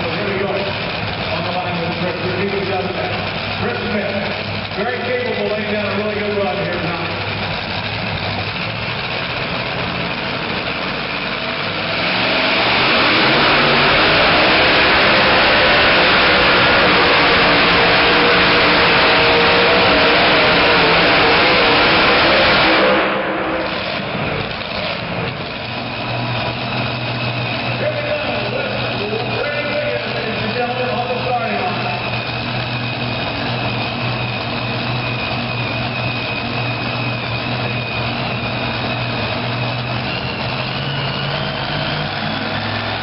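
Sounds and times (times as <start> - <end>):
truck engine at full throttle: 0.0 - 43.0.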